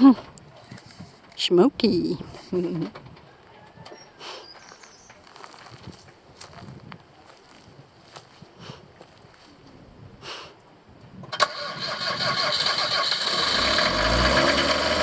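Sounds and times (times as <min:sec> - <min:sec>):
van engine starting and revving: 0:11.3 - 0:15.0.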